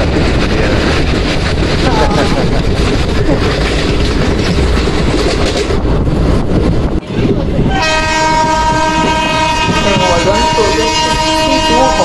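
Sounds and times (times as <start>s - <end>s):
passenger train running on track: 0.0s - 12.0s
wind noise: 0.0s - 12.0s
locomotive horn blast: 7.7s - 12.0s.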